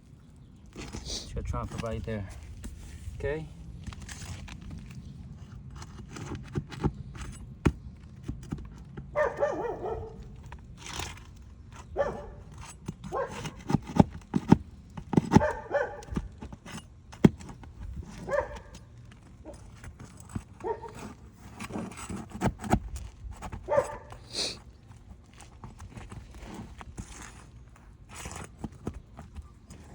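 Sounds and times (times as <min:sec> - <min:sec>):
dog barking: 0:09.1 - 0:10.3, 0:12.0 - 0:12.5, 0:13.1 - 0:13.5, 0:15.3 - 0:16.2, 0:18.2 - 0:18.8, 0:20.6 - 0:21.0, 0:23.7 - 0:24.2.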